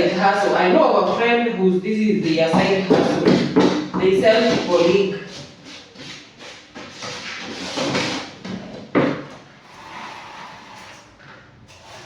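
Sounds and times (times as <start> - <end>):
containers knocking: 2.2 - 5.2.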